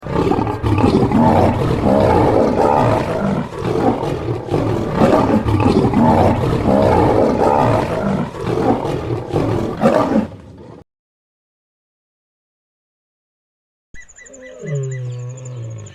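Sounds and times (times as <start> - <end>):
lion roaring: 0.0 - 10.8.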